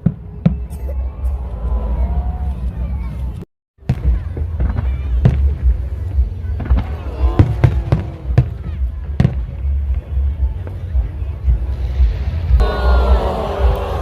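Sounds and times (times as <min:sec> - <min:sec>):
fireworks exploding: 0:03.8 - 0:12.6
music playing: 0:05.7 - 0:14.0.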